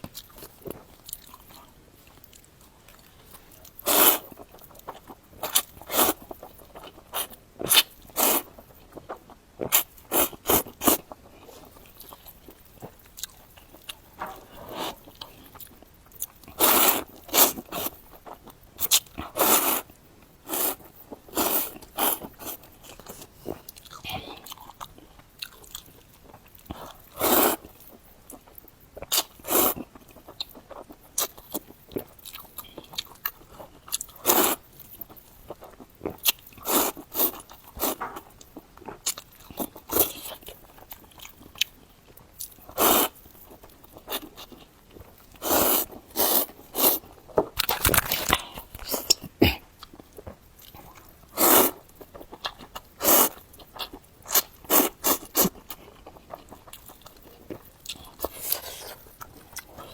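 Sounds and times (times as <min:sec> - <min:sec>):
wet chewing and biting: 0:43.5 - 0:59.9.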